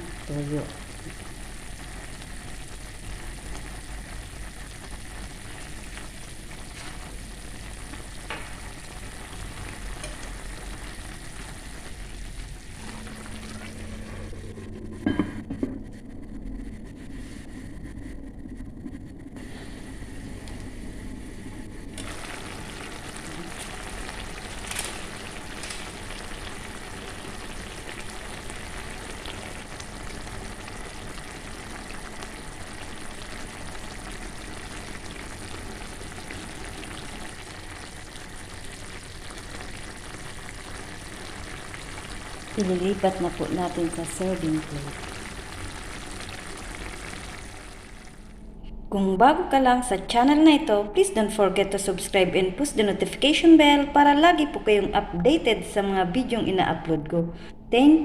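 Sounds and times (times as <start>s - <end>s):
food sizzling in a pan: 0.0s - 14.6s, 21.8s - 48.4s.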